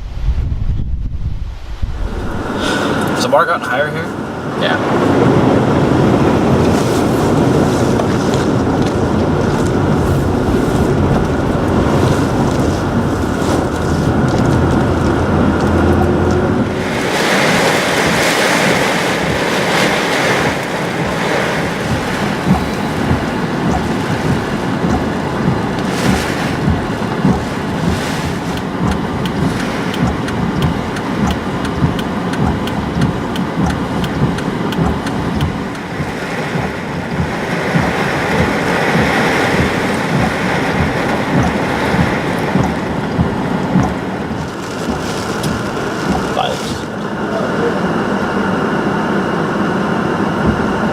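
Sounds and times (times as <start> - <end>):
roaring wind: 0.0 - 50.9
rain ticking close by: 2.2 - 48.3, 50.2 - 50.9.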